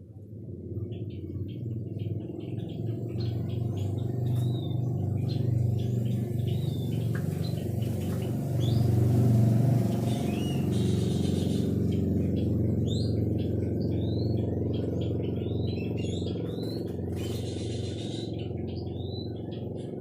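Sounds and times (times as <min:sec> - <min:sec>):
loud steady low drone: 0:00.0 - 0:20.0
bird singing chirps and whistles: 0:09.9 - 0:19.6.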